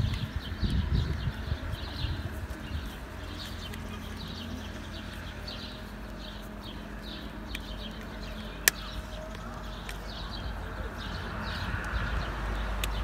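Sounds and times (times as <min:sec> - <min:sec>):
small birds chirping: 0:00.0 - 0:13.0
sharp click: 0:08.6 - 0:09.0.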